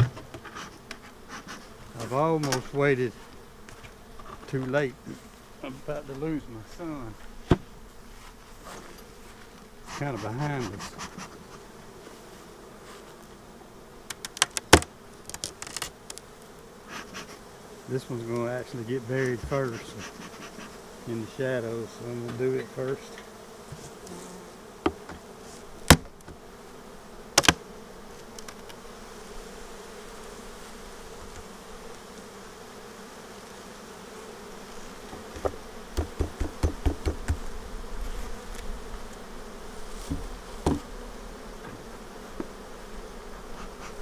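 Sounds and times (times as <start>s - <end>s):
honeybees buzzing: 0.0s - 44.0s
sharp knocks: 35.4s - 37.4s, 40.0s - 40.9s.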